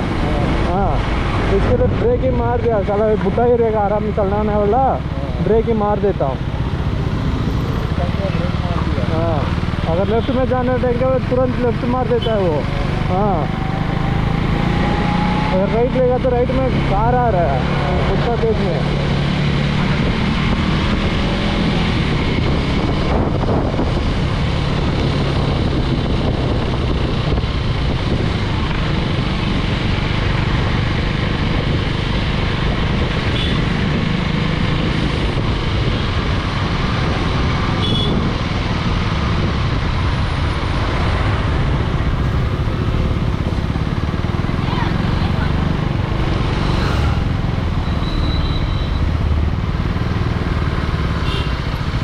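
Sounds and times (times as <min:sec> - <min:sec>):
motorcycle engine running: 0:18.9 - 0:52.0
wind rush over microphone: 0:19.2 - 0:47.8.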